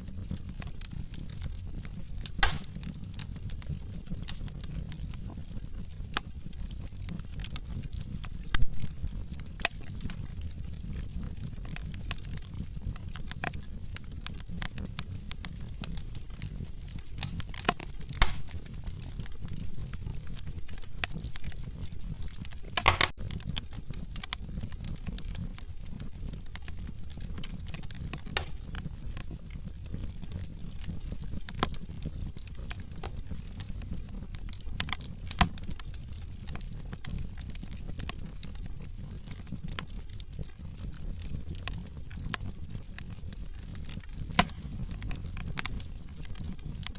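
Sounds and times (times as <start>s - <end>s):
fire flames rumbling: 0.0s - 46.9s
logs crackling and popping: 0.0s - 46.9s.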